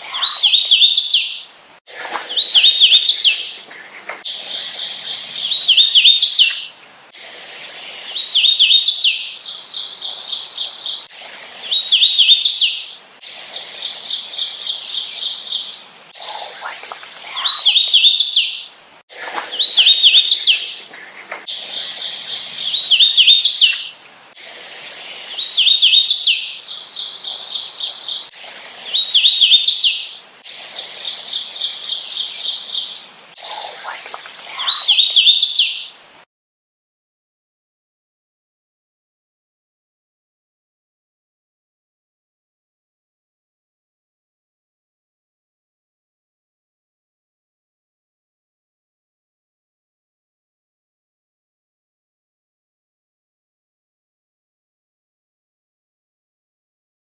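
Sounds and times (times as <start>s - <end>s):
warbler whistled song: 0.0s - 1.6s, 2.2s - 3.7s, 4.3s - 6.8s, 8.0s - 13.0s, 13.8s - 18.8s, 19.4s - 20.9s, 21.5s - 24.0s, 25.1s - 30.2s, 30.8s - 36.0s.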